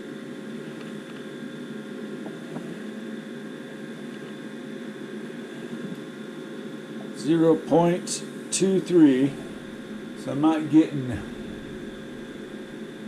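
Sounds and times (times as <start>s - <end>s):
draft inducer motor humming: 7.0s - 13.0s.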